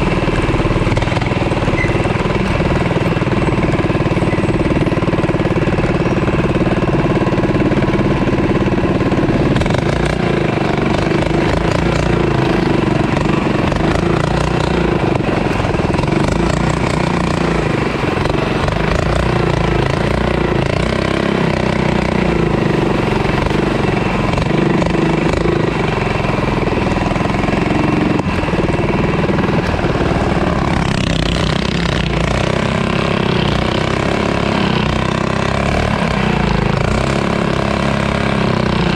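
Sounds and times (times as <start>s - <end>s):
small bike engine running: 0.0s - 38.9s.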